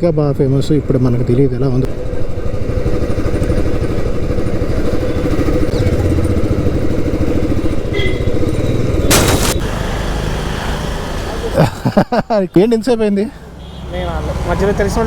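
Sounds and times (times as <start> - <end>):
short loud hiss: 9.1 - 10.1.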